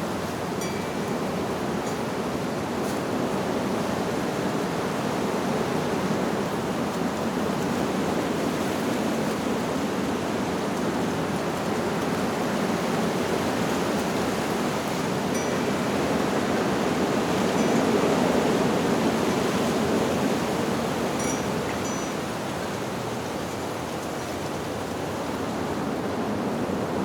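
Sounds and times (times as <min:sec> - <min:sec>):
wind blowing through leaves: 0:00.0 - 0:27.0
wind chime tone: 0:00.6 - 0:02.1, 0:15.2 - 0:18.6, 0:21.1 - 0:22.4.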